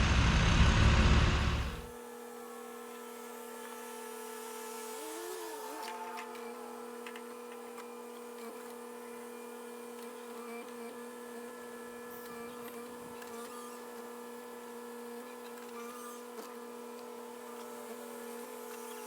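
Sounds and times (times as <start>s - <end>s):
tractor engine droning: 0.0s - 1.9s.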